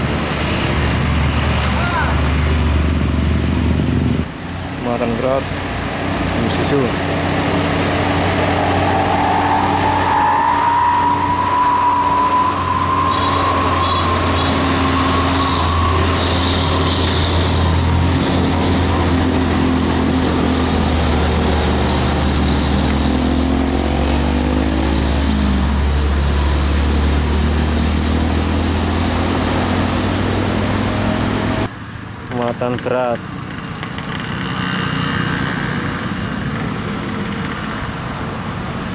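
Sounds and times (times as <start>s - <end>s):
truck diesel engine droning: 6.6s - 31.7s.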